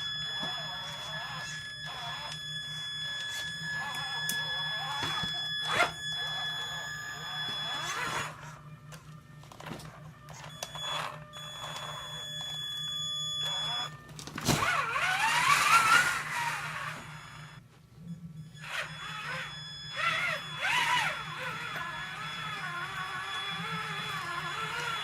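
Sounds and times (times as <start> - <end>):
rc truck motor whining: 0.0 - 17.6, 18.4 - 25.0.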